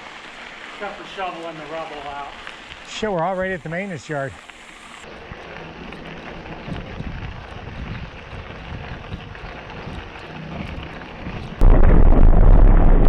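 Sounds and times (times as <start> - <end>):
bicycle rolling on dirt trail: 0.0 - 13.0
wind buffeting microphone: 5.2 - 13.0.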